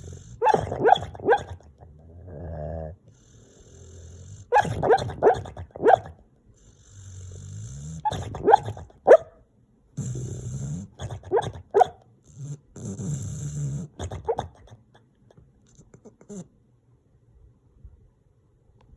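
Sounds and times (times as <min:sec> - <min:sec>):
dog growly snore-like rumbles: 0:00.0 - 0:05.8, 0:06.6 - 0:08.6, 0:10.0 - 0:11.6, 0:12.2 - 0:14.7
dog yips and muffled woofs: 0:00.4 - 0:01.6, 0:04.5 - 0:06.2, 0:08.1 - 0:09.4, 0:11.1 - 0:12.0.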